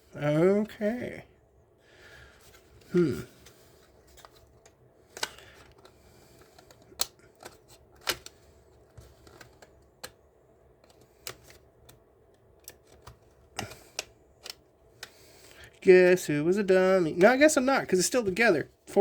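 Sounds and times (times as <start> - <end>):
plastic parts clicking and tapping: 3.4 - 15.6.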